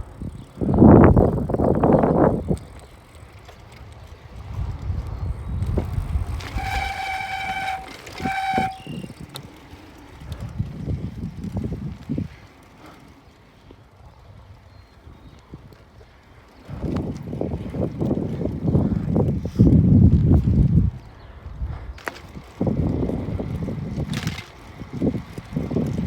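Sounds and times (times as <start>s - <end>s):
wind buffeting microphone: 0.0s - 26.0s
horn blasts: 6.4s - 9.2s.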